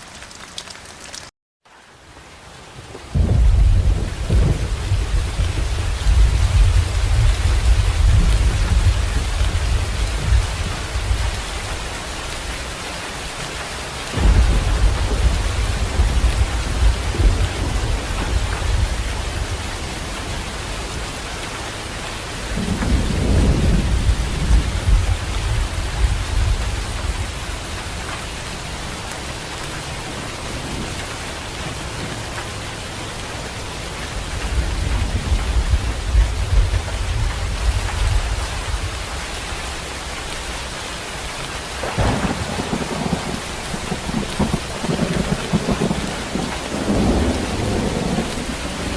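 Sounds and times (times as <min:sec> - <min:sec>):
steady rain hissing: 0:00.0 - 0:48.9
thunder rolling: 0:03.2 - 0:11.2, 0:14.2 - 0:19.8, 0:22.6 - 0:27.2, 0:41.8 - 0:48.9.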